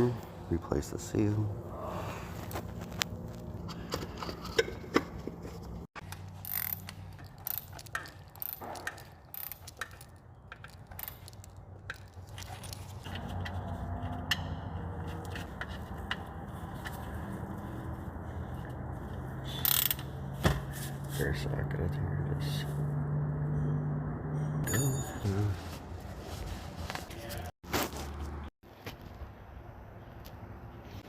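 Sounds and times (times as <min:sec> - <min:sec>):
metal tools clinking and scraping: 0:03.7 - 0:17.6, 0:24.4 - 0:25.9.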